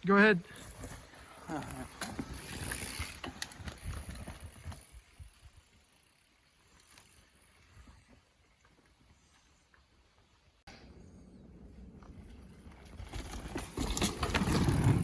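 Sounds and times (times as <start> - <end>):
bike rattling clicks and knocks: 1.8 - 5.3, 12.7 - 15.0
tyre rumble on dirt: 12.0 - 15.0.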